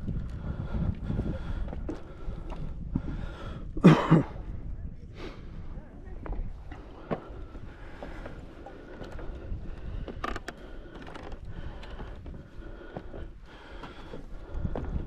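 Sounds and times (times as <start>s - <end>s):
wind rumble on microphone: 0.0s - 15.0s
footsteps on wooden steps: 6.2s - 15.0s.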